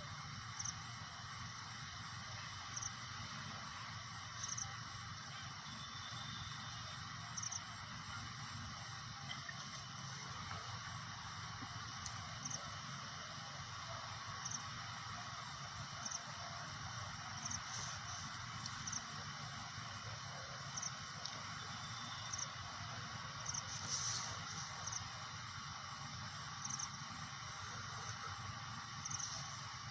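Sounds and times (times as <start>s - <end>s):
steady background hiss: 0.0s - 29.9s
high insect chirps: 4.2s - 4.9s, 5.7s - 7.7s, 17.3s - 19.9s, 20.6s - 29.9s.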